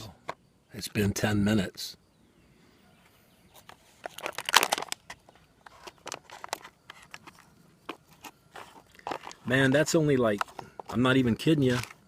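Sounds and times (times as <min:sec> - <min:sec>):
foil pouch crinkling: 0:03.9 - 0:12.0.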